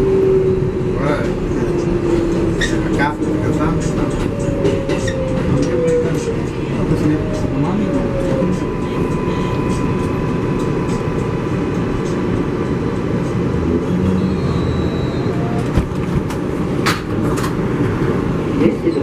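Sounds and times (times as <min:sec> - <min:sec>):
subway car rumbling on rails: 0:00.0 - 0:19.0.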